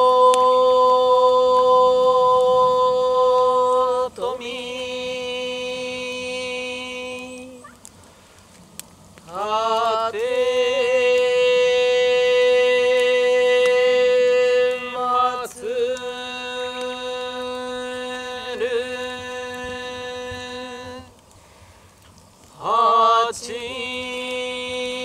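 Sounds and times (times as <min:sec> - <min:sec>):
person chanting a long note: 0:00.0 - 0:07.7.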